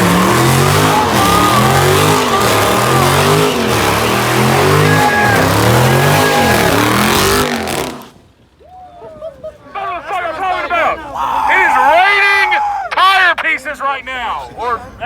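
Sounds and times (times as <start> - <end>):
tyres squealing: 0.0 - 8.1
car engine revving hard: 0.0 - 8.2.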